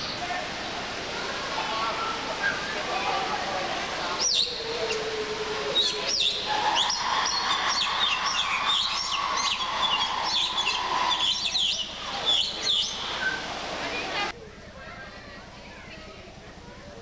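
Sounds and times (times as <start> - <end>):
birds chirping: 1.8 - 14.3.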